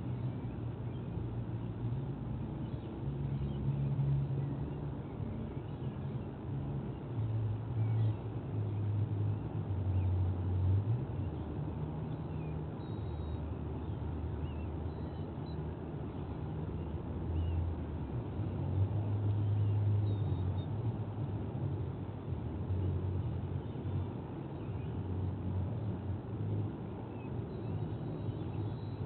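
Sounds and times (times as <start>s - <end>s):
low outdoor rumble: 0.0s - 29.0s
faint high bird chirps: 12.0s - 15.6s, 27.1s - 29.0s.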